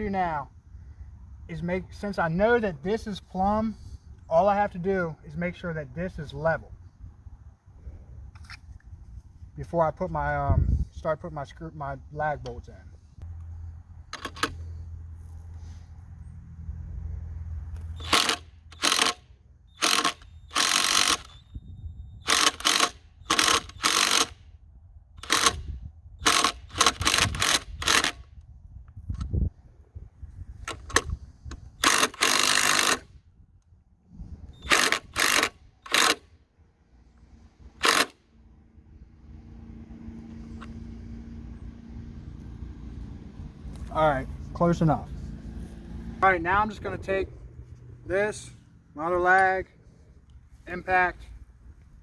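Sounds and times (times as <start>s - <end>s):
impact driver hammering: 18.0s - 21.4s, 22.3s - 24.4s, 25.2s - 28.2s, 31.8s - 33.1s, 34.6s - 36.2s, 37.8s - 38.2s.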